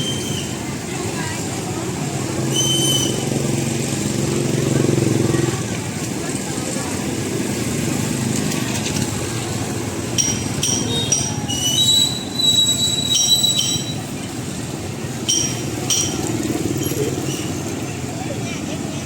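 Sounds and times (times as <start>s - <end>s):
street traffic hum: 0.0s - 19.0s
metallic clinks: 10.1s - 14.2s, 15.2s - 17.8s
ringing squeal: 10.2s - 14.2s.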